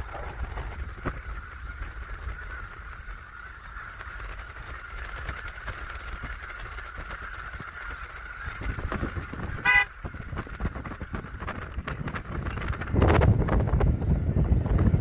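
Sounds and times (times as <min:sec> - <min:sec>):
geese honking chorus: 0:00.0 - 0:11.6
single loud goose honk: 0:09.6 - 0:10.0.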